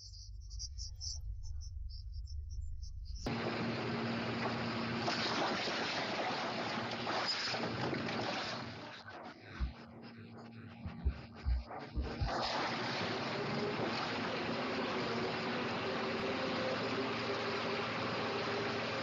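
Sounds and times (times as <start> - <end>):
faint steady hum: 0.0 - 19.0
short low thumps: 9.5 - 12.5
rushing wind and water: 12.0 - 19.0.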